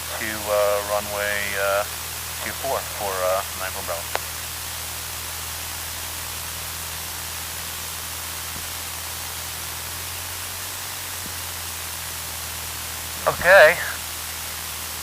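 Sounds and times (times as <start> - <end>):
radio intercom hiss: 0.0 - 4.5, 13.0 - 15.0.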